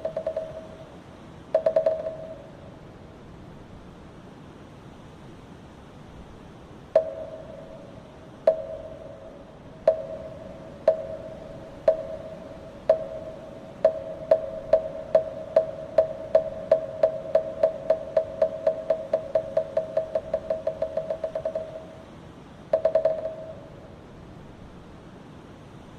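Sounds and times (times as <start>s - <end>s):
wooden block struck with mallet: 0.0s - 0.9s, 1.6s - 2.5s, 7.0s - 7.9s, 8.5s - 22.0s, 22.7s - 23.6s.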